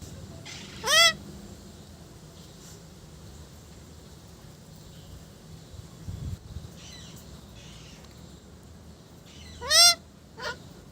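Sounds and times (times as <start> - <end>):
parrot squawking: 0.4 - 1.2, 9.4 - 10.6.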